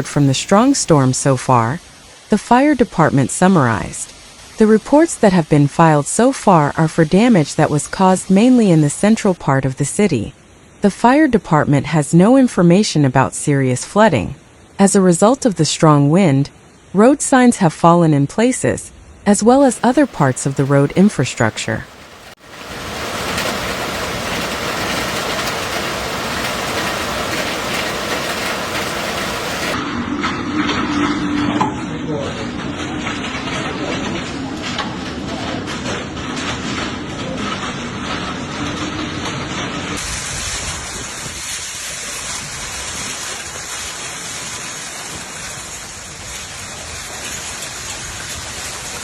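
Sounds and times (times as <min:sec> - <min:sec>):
heavy rain downpour: 0:00.0 - 0:02.3, 0:03.2 - 0:05.3, 0:19.6 - 0:29.8, 0:32.0 - 0:49.0.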